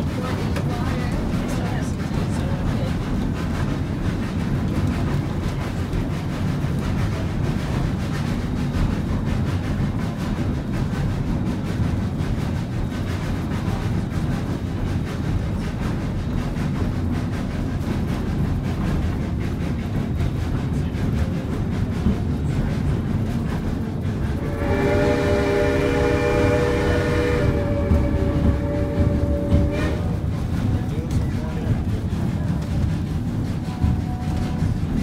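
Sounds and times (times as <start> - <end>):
train rumbling: 0.0 - 35.0
steam whistle chord: 24.4 - 30.0.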